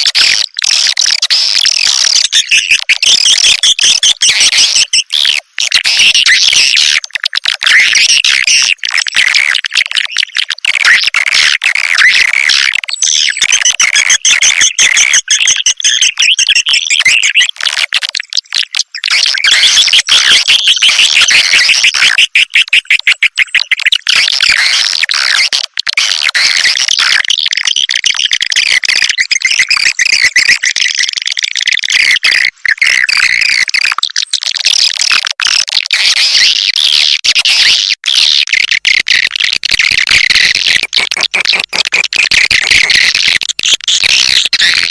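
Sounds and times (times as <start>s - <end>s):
rapid clicks: 39.0s - 43.8s.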